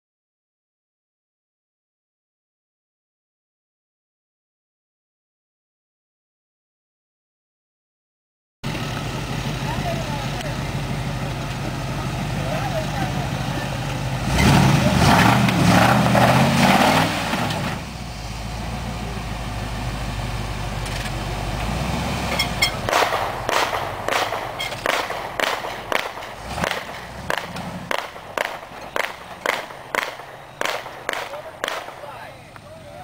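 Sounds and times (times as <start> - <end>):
truck engine revving: 8.6 - 33.0
sharp bangs: 22.3 - 32.5.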